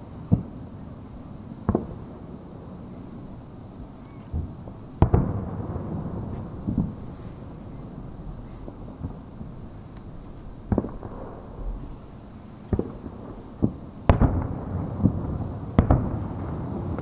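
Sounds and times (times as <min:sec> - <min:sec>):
firework shells bursting: 0:04.3 - 0:17.0.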